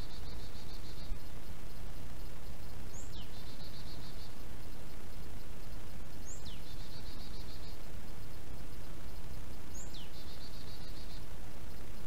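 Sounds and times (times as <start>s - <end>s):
low rumble of outdoor noise: 0.0s - 12.0s
songbird singing: 0.0s - 12.0s
faint bird trilling: 9.1s - 11.3s.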